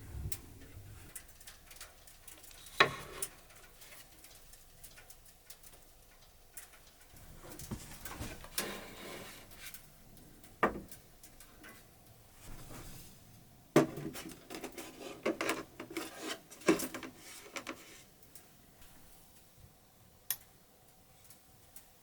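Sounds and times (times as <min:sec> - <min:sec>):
wood rubbing and scraping: 0:07.5 - 0:09.7, 0:14.0 - 0:18.1.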